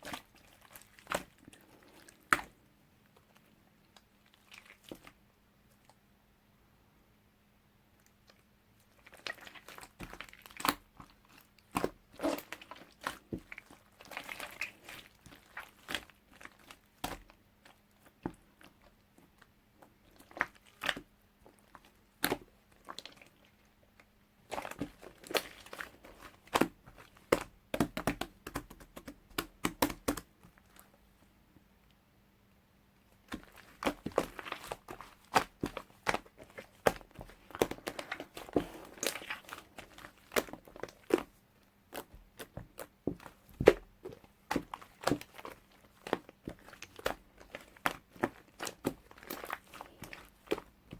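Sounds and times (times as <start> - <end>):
faint steady hum: 0.0 - 50.9
taps and clicks handling clay: 24.5 - 30.9, 33.3 - 41.3, 41.9 - 50.9
crinkling rustles: 33.1 - 50.9.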